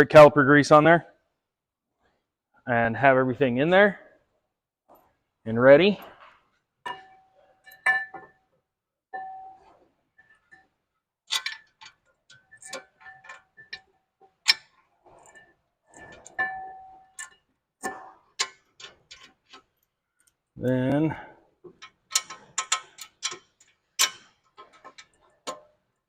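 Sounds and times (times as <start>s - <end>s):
metal clips clicking and clinking: 21.8s - 25.7s.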